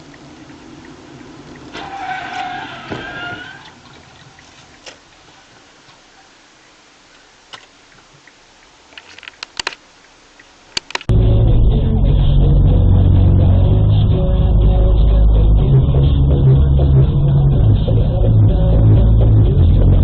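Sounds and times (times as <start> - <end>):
sharp clicks or knocks: 10.8 - 11.1.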